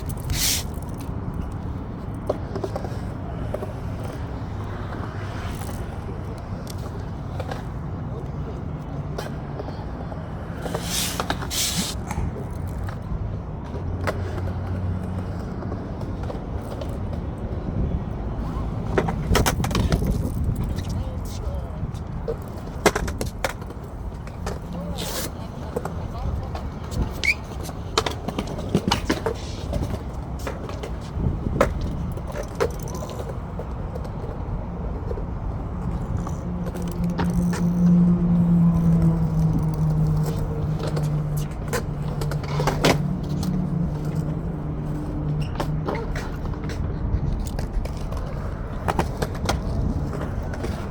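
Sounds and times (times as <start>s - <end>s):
skateboard clacks: 0.0s - 38.1s, 38.9s - 50.9s
skateboard wheels rolling on concrete: 0.0s - 50.9s
short hissing bursts: 0.3s - 0.7s, 10.8s - 12.0s
wind rumble on microphone: 12.0s - 50.9s.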